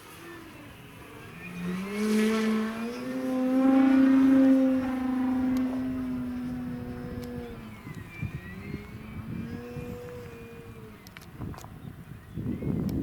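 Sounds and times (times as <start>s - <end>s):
model airplane motor droning: 0.0s - 13.0s.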